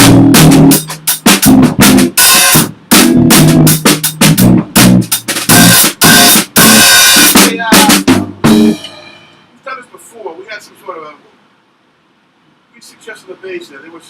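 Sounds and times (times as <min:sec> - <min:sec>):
rock band playing: 0:00.0 - 0:09.3
drum hits and cymbal crashes: 0:00.0 - 0:09.5.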